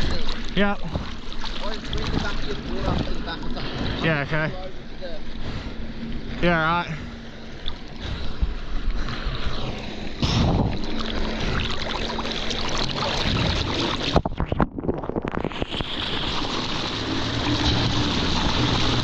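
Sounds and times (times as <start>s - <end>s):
jet ski engine running: 0.0s - 14.2s, 15.5s - 19.0s
water splashing: 0.0s - 19.0s
wind buffeting microphone: 1.9s - 4.0s, 10.2s - 11.6s.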